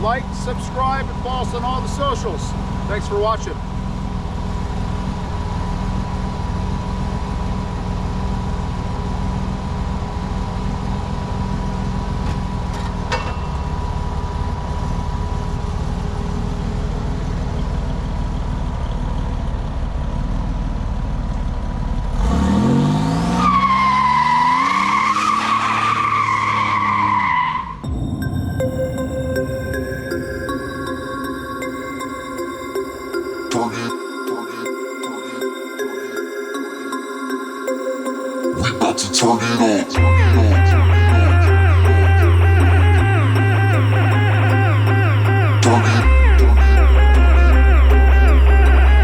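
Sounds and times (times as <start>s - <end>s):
car engine revving: 0.0s - 28.6s, 39.9s - 49.0s
tires squealing: 22.2s - 27.9s.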